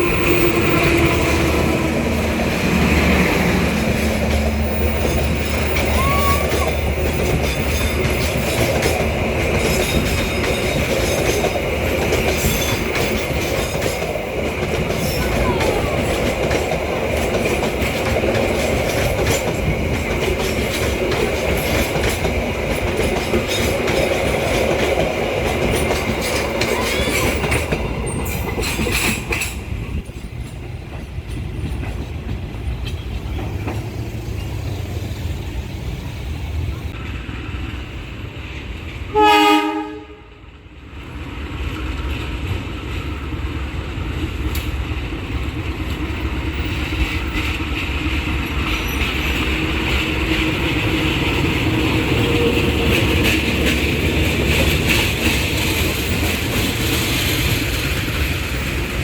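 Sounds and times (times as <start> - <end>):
train wheels clicking over rail joints: 0.0 - 37.9, 41.1 - 59.0
train rumble: 0.0 - 59.0
high wheel squeal: 4.1 - 8.5, 26.3 - 29.1.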